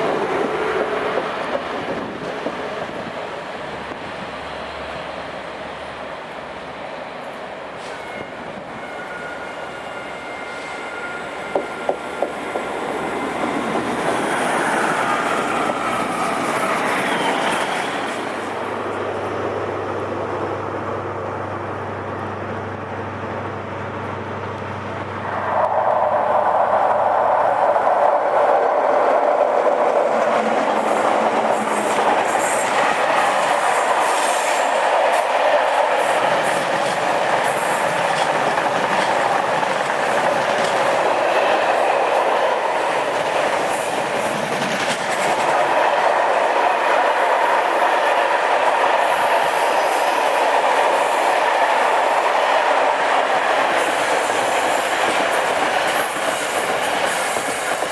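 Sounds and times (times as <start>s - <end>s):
train wheels rushing on rail: 0.0s - 57.9s.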